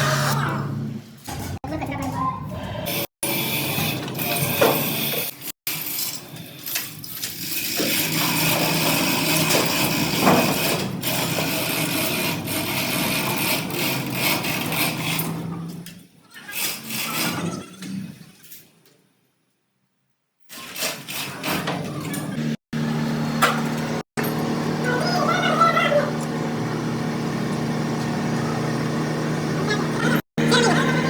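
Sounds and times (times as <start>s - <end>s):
workshop noise: 0.0s - 18.9s, 20.4s - 31.0s
power tool running: 2.8s - 6.1s, 7.5s - 15.6s, 20.6s - 31.0s.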